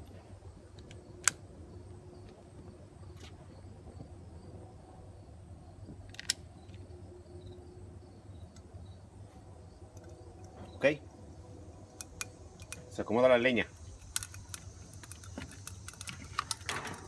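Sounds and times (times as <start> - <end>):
flames rumbling: 10.0 - 17.0.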